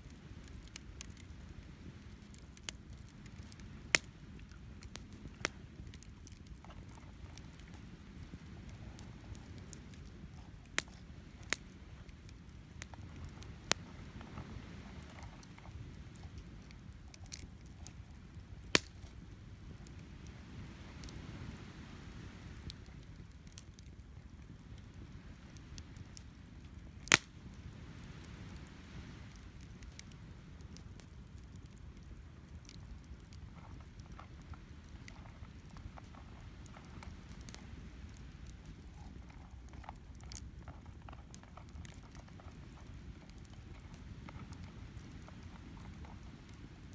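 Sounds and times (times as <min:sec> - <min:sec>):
campfire popping and crackling: 0:00.0 - 0:46.9
wind: 0:00.0 - 0:46.9.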